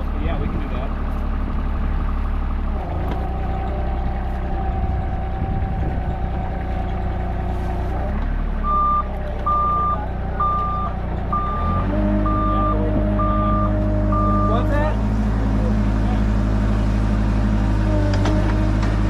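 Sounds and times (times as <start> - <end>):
diesel engine running: 0.0 - 19.0
travel alarm beeping: 8.6 - 14.6.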